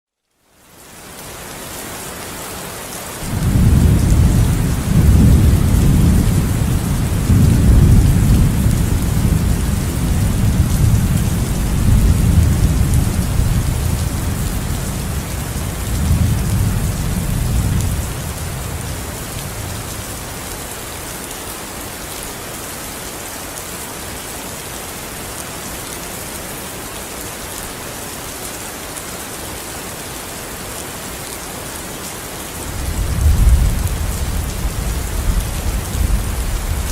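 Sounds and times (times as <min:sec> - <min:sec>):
heavy rain falling: 0:00.5 - 0:36.9
thunder rumbling: 0:03.3 - 0:20.2, 0:32.7 - 0:36.9.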